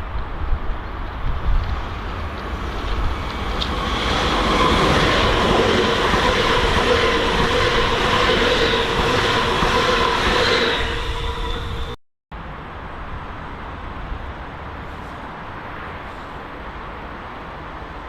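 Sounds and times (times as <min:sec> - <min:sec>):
train rushing along track: 0:00.0 - 0:18.0
high-pitched train whine: 0:01.8 - 0:12.0.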